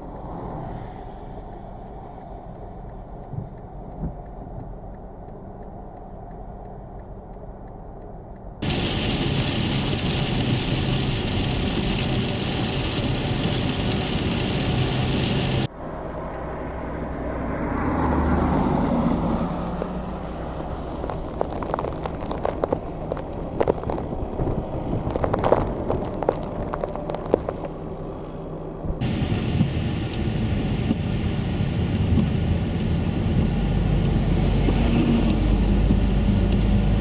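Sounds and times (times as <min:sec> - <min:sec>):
road vehicle noise: 0:00.0 - 0:37.0
vehicle passing: 0:14.0 - 0:21.1
crackling clicks: 0:21.0 - 0:27.8.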